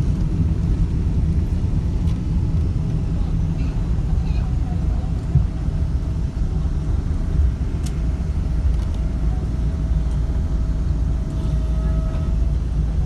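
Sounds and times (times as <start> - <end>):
low rumble inside aircraft cabin: 0.0 - 13.0.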